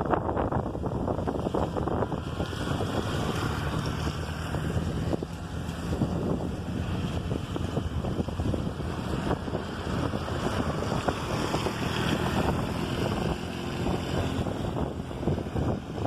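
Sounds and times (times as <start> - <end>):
scooter engine rumbling: 0.0 - 16.0
wind buffeting microphone: 0.0 - 16.0.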